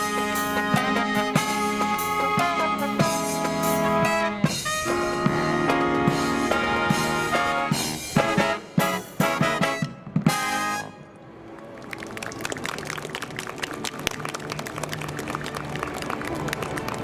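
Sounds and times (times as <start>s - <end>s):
marching brass band with drums: 0.0s - 11.1s.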